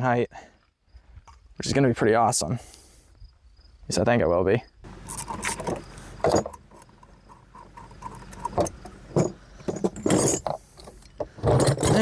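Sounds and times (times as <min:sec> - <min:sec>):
steel parts clinking and knocking: 0:05.0 - 0:12.0.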